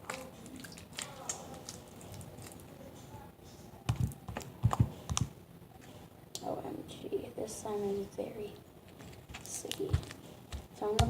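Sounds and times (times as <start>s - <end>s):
slime thumps: 3.9s - 5.3s, 9.3s - 11.0s.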